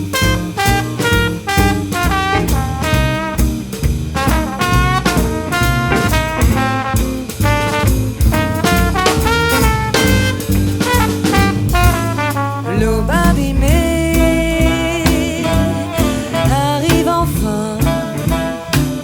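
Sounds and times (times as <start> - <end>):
double bass: 0.0 - 19.0
drum kit: 0.0 - 19.0
guitar: 0.0 - 19.0
trombone: 0.0 - 19.0
saxophone: 4.2 - 19.0.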